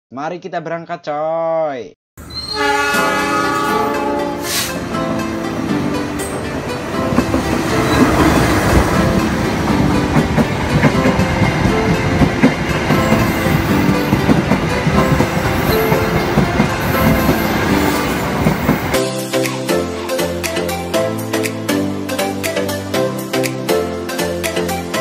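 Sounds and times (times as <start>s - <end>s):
diesel locomotive passing: 2.2s - 21.4s
wheel clatter over rail joints: 5.0s - 19.0s.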